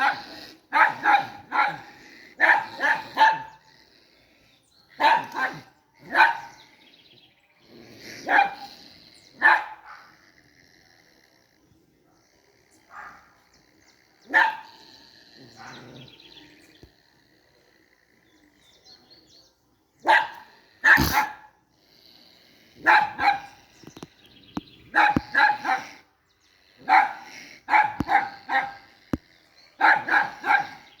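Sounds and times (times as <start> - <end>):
dog barking: 0.0 - 3.7, 5.0 - 6.6, 8.2 - 8.7, 9.4 - 10.2, 12.9 - 13.4, 14.3 - 14.8, 20.0 - 21.6, 22.8 - 23.6, 24.9 - 26.0, 26.8 - 28.9, 29.8 - 31.0.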